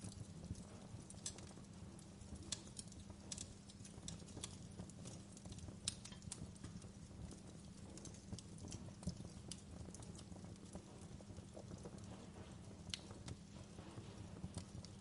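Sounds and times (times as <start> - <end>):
fire crackling: 0.0 - 15.0
fire low rumble: 0.0 - 15.0.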